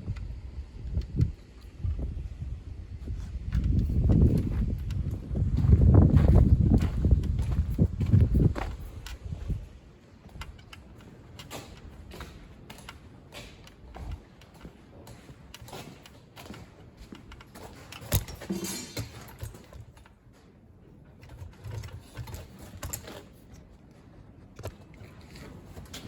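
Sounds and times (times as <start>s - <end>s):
workshop clicks and knocks: 3.5s - 23.7s.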